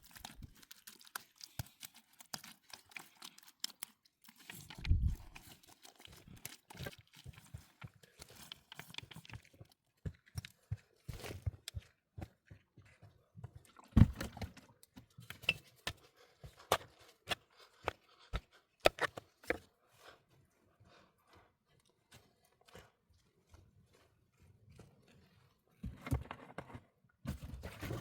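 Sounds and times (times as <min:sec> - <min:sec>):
hands working with materials: 0:00.0 - 0:12.4.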